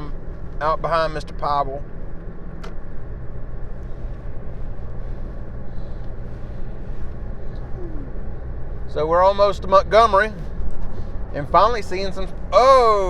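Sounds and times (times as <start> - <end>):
engine and road drone: 0.0 - 13.0.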